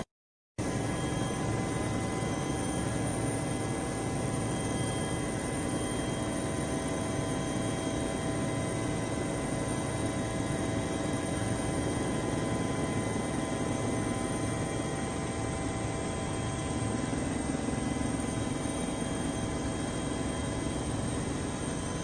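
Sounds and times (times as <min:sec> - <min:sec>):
helicopter droning: 0:00.6 - 0:22.0.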